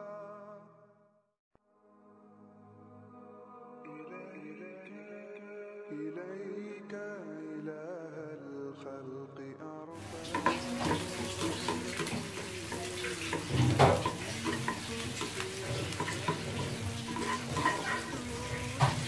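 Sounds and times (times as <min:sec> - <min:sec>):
background music: 0:01.7 - 0:19.0
onions sizzling in hot oil: 0:10.0 - 0:19.0
spatula scraping a pan: 0:10.0 - 0:19.0.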